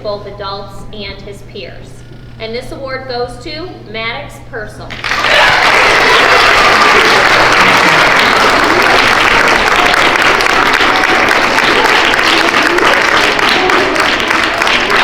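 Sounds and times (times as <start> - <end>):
audience clapping: 4.9 - 15.0.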